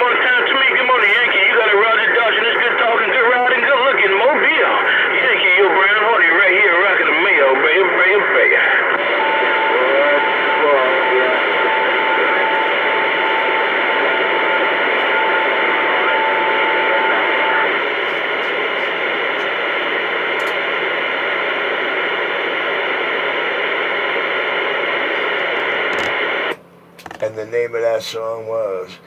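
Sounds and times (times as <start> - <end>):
radio static hiss: 0.0 - 29.0
steady whistle tone: 9.0 - 17.6.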